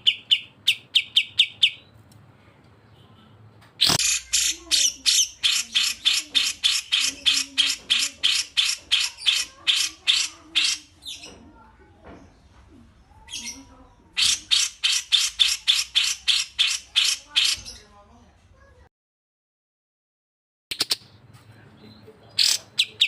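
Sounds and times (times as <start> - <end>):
bird harsh chattering: 0.0 - 1.9, 3.8 - 11.4, 13.2 - 17.9, 22.3 - 23.0.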